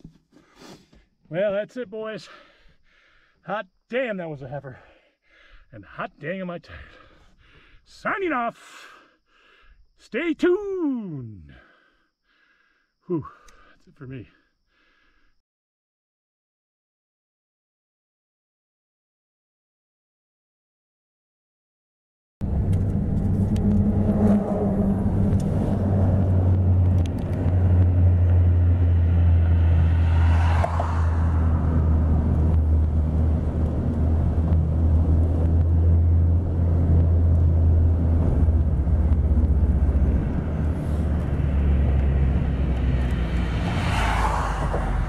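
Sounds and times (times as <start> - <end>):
car engine and road rumble: 22.4 - 45.0.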